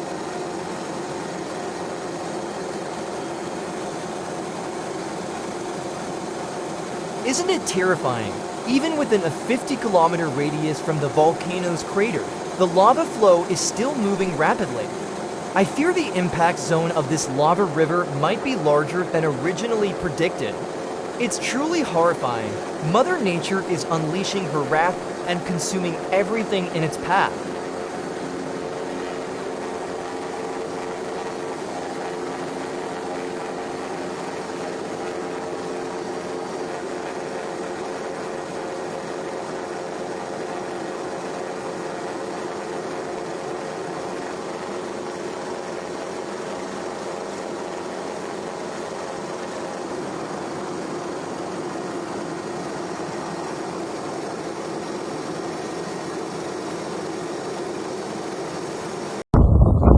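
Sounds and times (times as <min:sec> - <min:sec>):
steady mechanical drone: 0:00.0 - 0:36.4
held low tones: 0:59.4 - 0:59.9.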